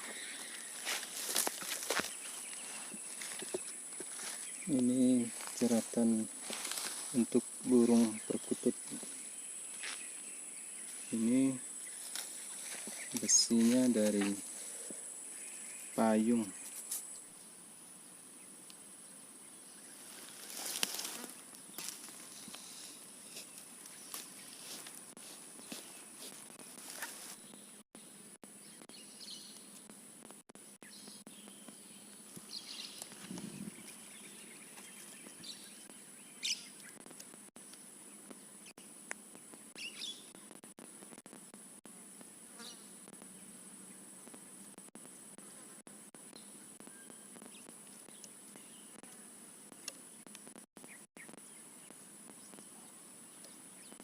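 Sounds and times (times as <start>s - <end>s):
insects droning: 0.0s - 54.0s
rustling: 20.0s - 27.4s
bird chirps: 30.8s - 37.0s, 39.7s - 40.5s.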